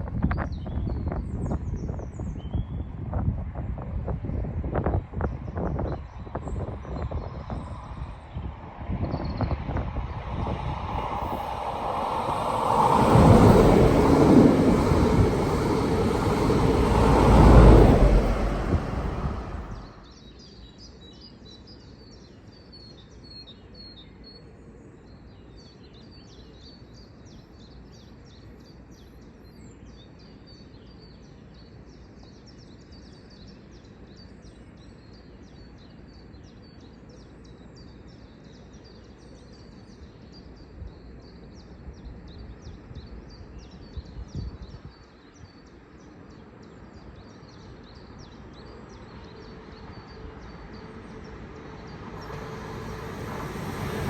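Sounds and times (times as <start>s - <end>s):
passing train: 4.8s - 20.1s, 47.4s - 54.0s
low background rumble: 5.6s - 20.0s.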